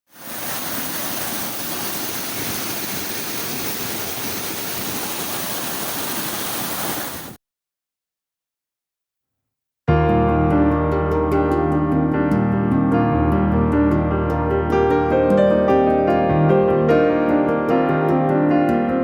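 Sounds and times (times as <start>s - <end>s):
waterfall rushing: 0.1s - 7.4s.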